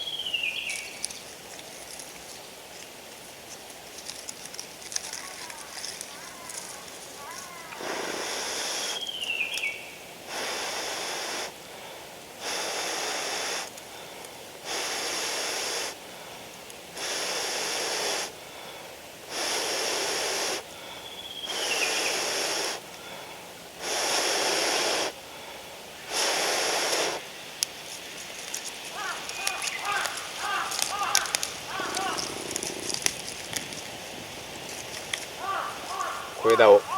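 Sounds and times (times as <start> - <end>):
breaths blown on ember: 23.8 - 25.2, 26.1 - 27.2.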